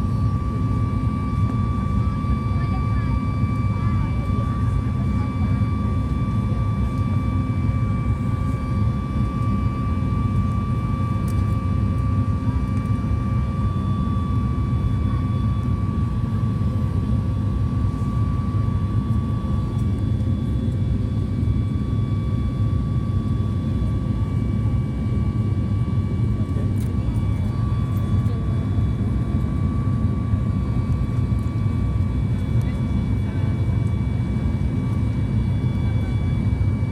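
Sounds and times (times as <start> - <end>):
airplane cabin engine rumble: 0.0 - 36.9
constant high whine: 0.0 - 36.9.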